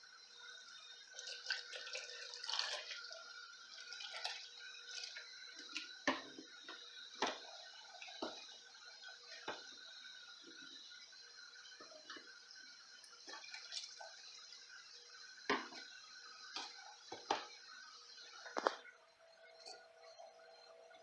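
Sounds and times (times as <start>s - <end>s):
liquid pouring into plastic bottle: 1.2s - 6.0s.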